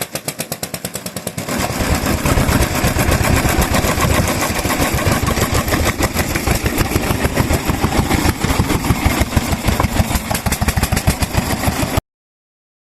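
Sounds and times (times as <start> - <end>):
stationary engine exhaust firing: 0.0 - 12.0.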